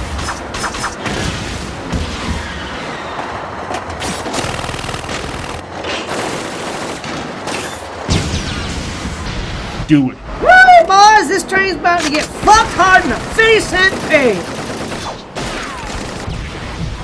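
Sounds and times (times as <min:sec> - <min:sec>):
rapid gunfire: 0:04.0 - 0:08.3, 0:12.4 - 0:17.0.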